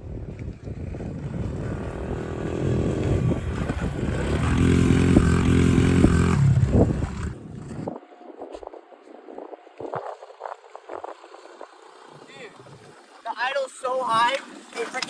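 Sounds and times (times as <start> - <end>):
pit bike engine revving: 0.8 - 7.9.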